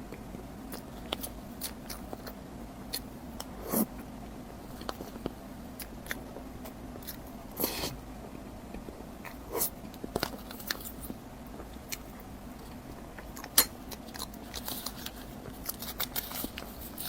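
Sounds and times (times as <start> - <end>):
biting and chewing: 4.7 - 7.9, 8.7 - 17.0.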